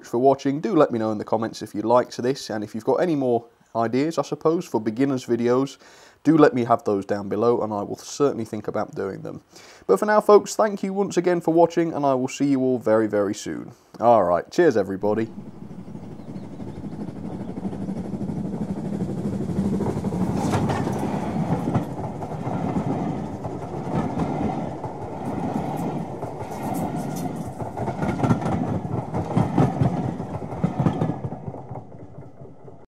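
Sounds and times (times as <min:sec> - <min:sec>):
train rumble: 0:14.2 - 0:32.9
train wheels clattering: 0:15.0 - 0:32.9.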